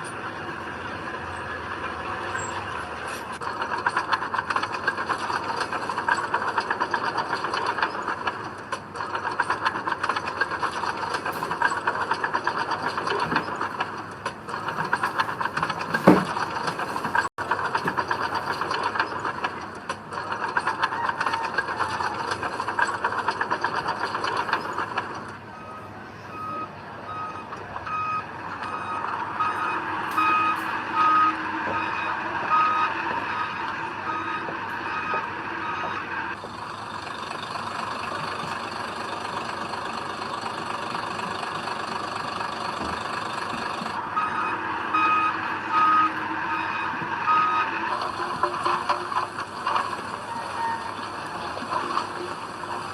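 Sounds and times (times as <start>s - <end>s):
heavy machinery clattering: 0.0s - 52.9s
reversing alarm beeping: 25.5s - 36.4s, 42.8s - 52.9s.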